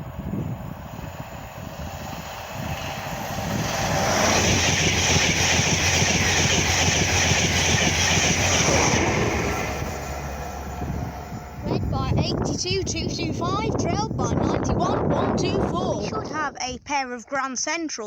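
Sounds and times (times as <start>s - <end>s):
train passing at speed: 0.0s - 14.2s
steady low hum: 0.0s - 17.1s.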